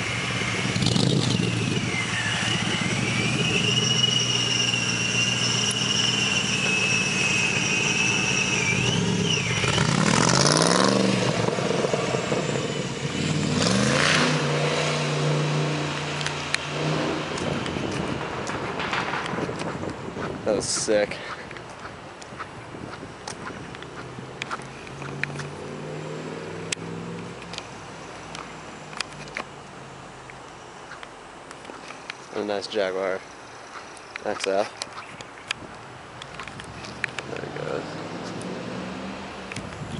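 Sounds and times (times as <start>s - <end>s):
car engine revving: 0.0s - 20.4s, 23.4s - 29.4s, 37.1s - 39.6s.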